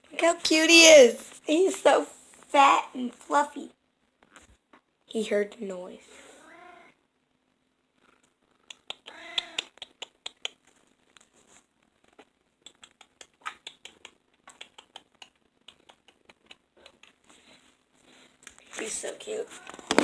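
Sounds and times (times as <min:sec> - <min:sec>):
cat meowing: 0:06.4 - 0:07.0, 0:09.0 - 0:09.7.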